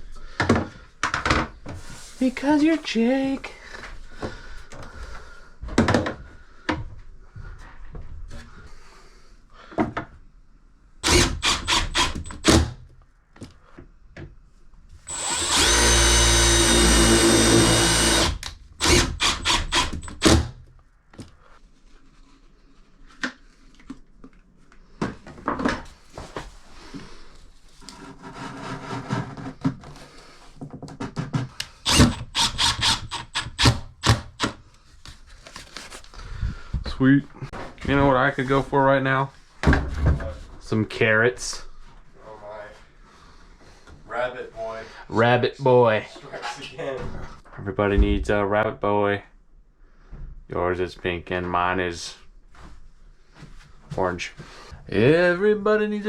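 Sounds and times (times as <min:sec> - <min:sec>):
power drill running: 0:11.0 - 0:12.8, 0:15.1 - 0:20.6, 0:31.8 - 0:34.6.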